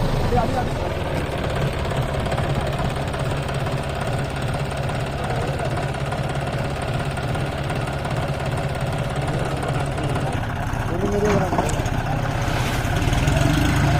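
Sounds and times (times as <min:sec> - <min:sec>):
tractor diesel engine running: 0:00.0 - 0:13.9.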